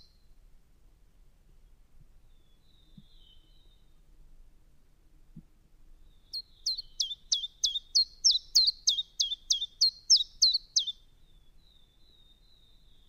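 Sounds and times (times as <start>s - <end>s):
bird singing sharp notes: 6.3s - 11.0s.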